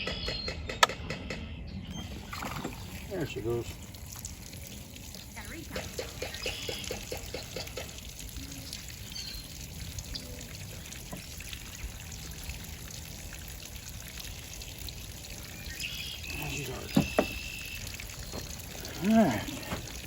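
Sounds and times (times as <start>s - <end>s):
water pouring and trickling: 1.9s - 20.0s.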